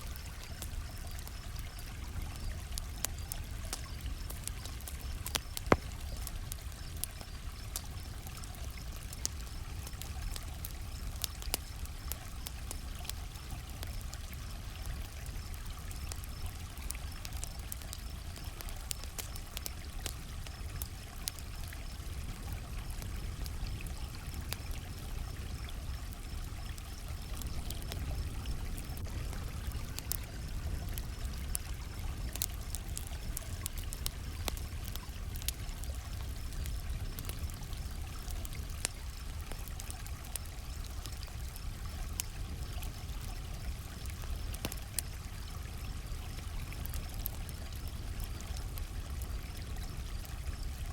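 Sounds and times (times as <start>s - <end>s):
campfire crackling and popping: 0.0s - 50.9s
crickets chirping: 0.0s - 50.9s.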